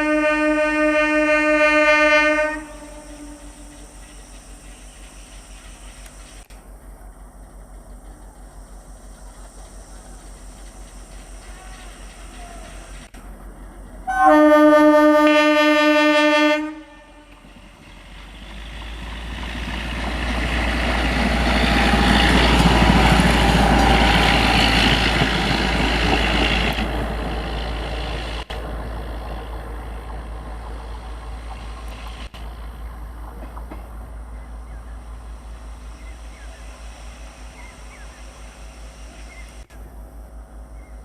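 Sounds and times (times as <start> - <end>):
train horn blast: 0.0 - 3.7, 14.1 - 17.6
train wheels rushing on rails: 0.0 - 16.4, 17.1 - 39.8.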